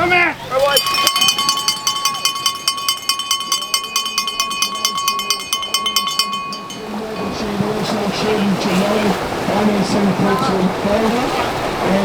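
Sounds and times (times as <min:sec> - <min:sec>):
metal bell rung rapidly: 0:00.7 - 0:08.4.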